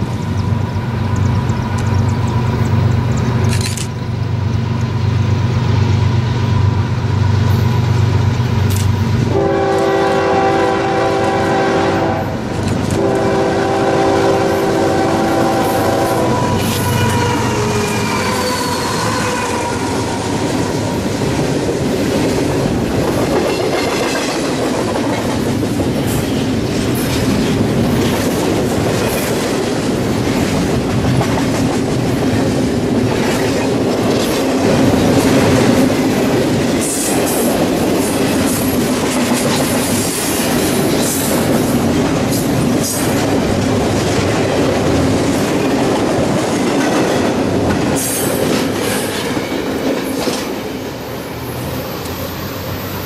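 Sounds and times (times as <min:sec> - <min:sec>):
freight train rumbling past: 0:00.0 - 0:53.0
locomotive horn: 0:09.3 - 0:20.8
high-pitched wheel squeals: 0:16.4 - 0:20.2.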